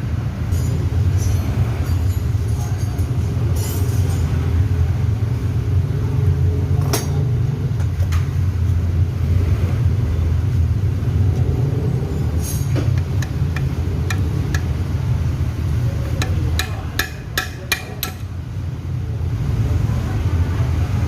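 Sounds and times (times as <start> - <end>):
steady low hum: 3.2 - 20.2
hammer striking metal: 13.0 - 14.9, 16.0 - 18.3.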